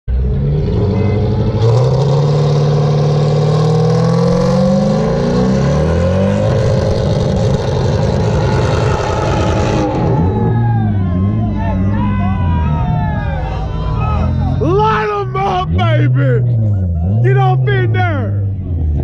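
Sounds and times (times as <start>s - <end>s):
car engine revving hard: 0.1s - 11.9s.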